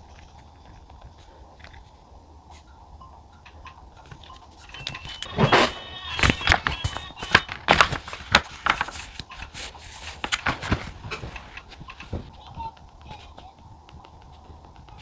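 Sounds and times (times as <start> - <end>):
stationery handled on a desk: 4.2 - 12.3.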